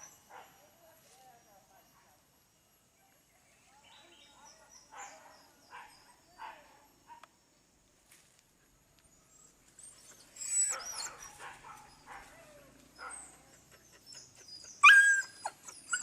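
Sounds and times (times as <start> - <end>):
dogs yipping and whimpering: 9.4 - 16.0.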